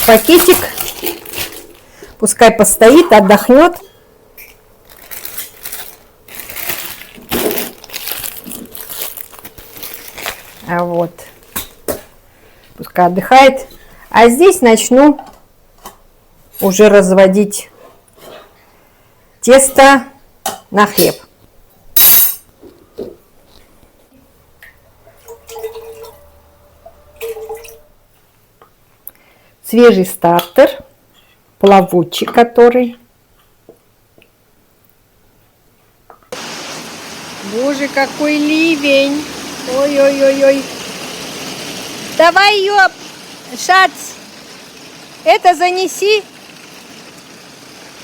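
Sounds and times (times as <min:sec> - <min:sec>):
plastic bag rustling: 0:00.0 - 0:02.2, 0:04.8 - 0:11.8
liquid trickling into a bowl: 0:25.1 - 0:26.5.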